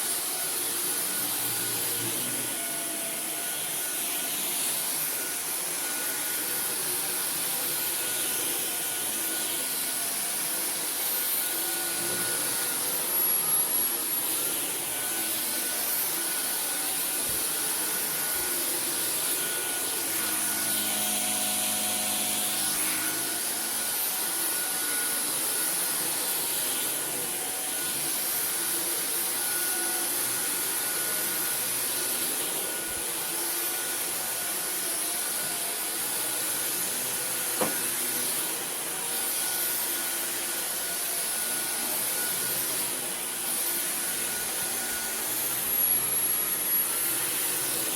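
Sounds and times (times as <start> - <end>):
vacuum cleaner on carpet: 0.0 - 47.9.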